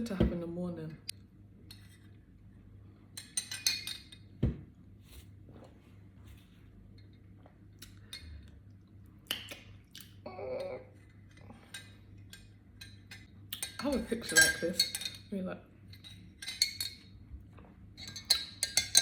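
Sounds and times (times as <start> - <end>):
glassware and dishes clinking: 3.2 - 4.3, 11.6 - 15.3, 18.0 - 19.0.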